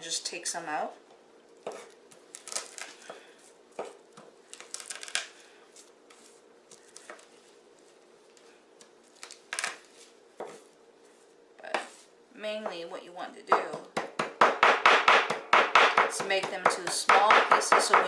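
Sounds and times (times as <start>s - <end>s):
garlic skins crackling and tearing: 1.9s - 3.0s, 4.5s - 6.0s, 8.8s - 9.9s.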